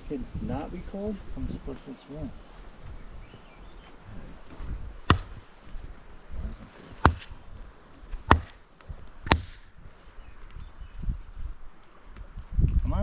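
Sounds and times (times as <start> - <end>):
axe chopping wood: 4.5 - 5.5, 6.9 - 7.4, 8.1 - 8.6, 9.2 - 9.7.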